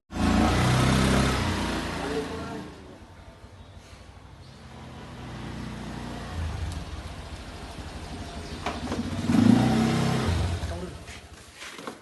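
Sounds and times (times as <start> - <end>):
vehicle engine revving: 0.1 - 2.8, 4.6 - 11.1.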